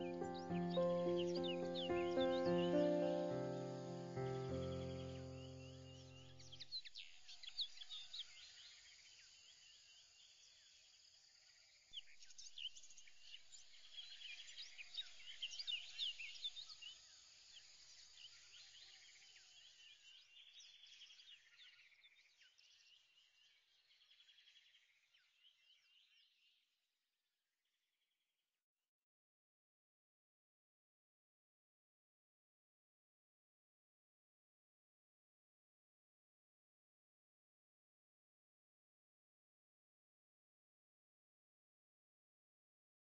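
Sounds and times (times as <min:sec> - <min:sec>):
small birds chirping: 0:00.0 - 0:10.9, 0:12.0 - 0:26.5.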